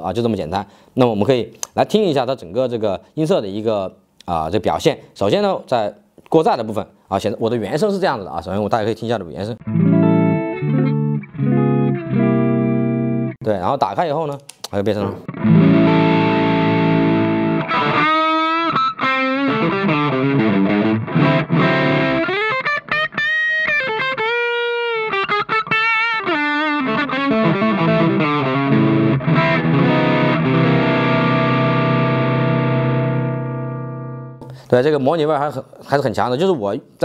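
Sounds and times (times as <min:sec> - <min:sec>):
overdriven electric guitar: 0:09.6 - 0:13.4, 0:15.2 - 0:34.6.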